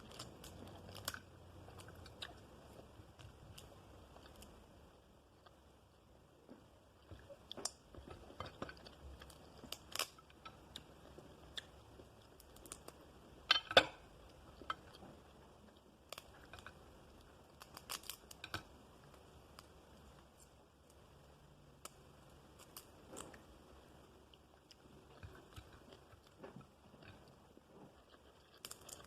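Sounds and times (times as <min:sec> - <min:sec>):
crab shell cracking: 0:00.0 - 0:04.6, 0:07.6 - 0:15.1, 0:16.1 - 0:19.8, 0:22.6 - 0:23.4, 0:24.7 - 0:29.0.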